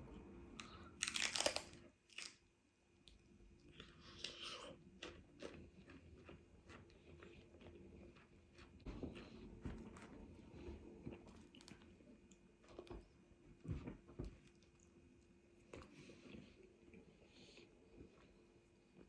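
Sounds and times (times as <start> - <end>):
person chewing crunchy food: 0.6 - 2.4, 3.6 - 13.1.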